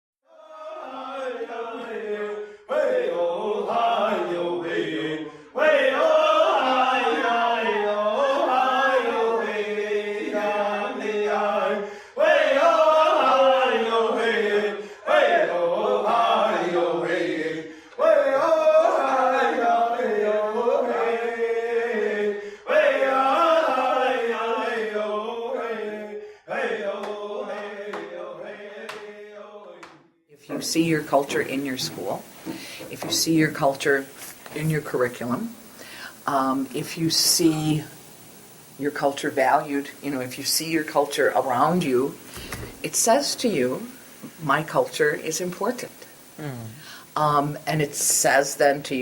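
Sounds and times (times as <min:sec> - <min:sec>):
voices chanting a song: 0:00.2 - 0:49.0.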